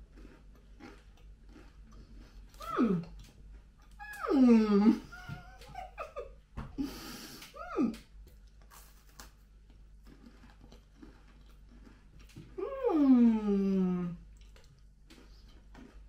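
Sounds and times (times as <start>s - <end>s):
cracker crunch: 0.0s - 4.2s, 8.2s - 12.6s, 14.3s - 16.0s
chewing clicks: 0.2s - 4.0s, 14.4s - 16.0s
person humming mm: 12.6s - 14.3s.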